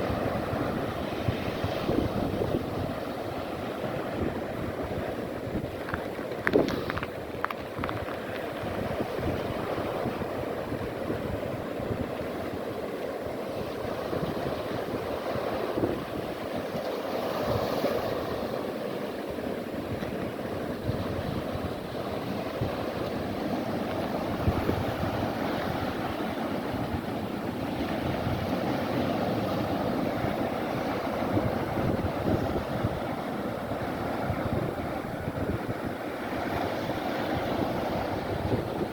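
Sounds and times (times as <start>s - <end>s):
waves washing on shore: 0.0s - 38.9s
wind on microphone: 0.0s - 38.9s.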